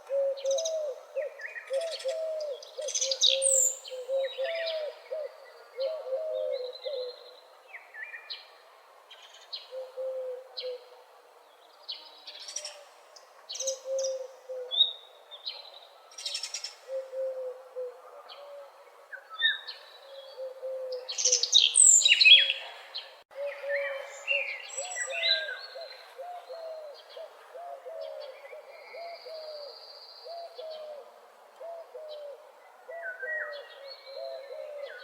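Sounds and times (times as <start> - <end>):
birds chirping and trilling: 11.6 - 31.0.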